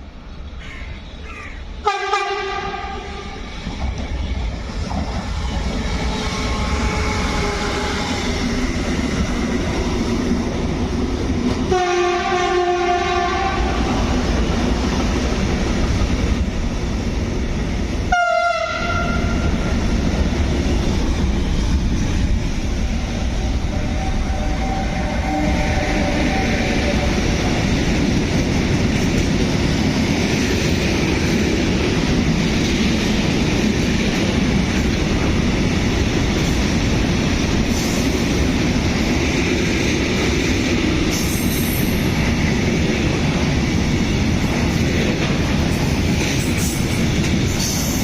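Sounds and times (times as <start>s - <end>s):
train wheels rushing on rails: 0.0s - 48.0s
train horn: 1.8s - 3.5s, 6.1s - 8.3s, 11.7s - 14.0s, 18.1s - 19.5s, 22.9s - 27.6s.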